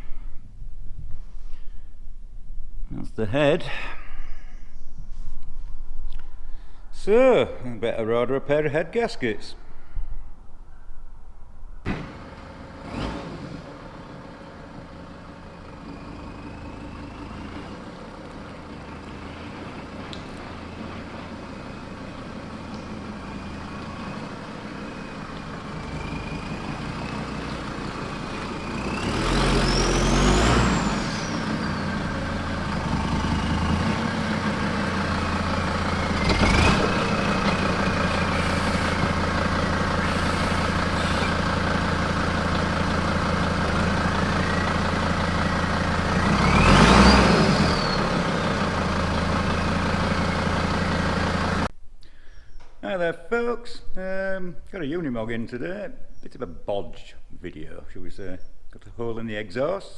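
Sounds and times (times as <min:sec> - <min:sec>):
engine revving: 0:11.9 - 0:51.7.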